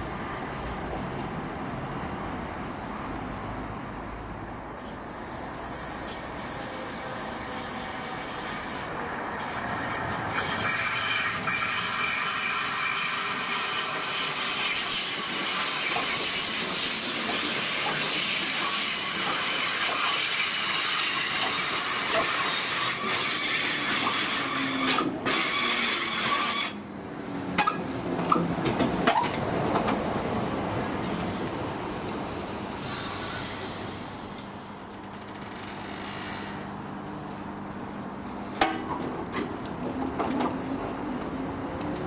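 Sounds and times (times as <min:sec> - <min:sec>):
train wheels on rails: 0:04.6 - 0:37.1.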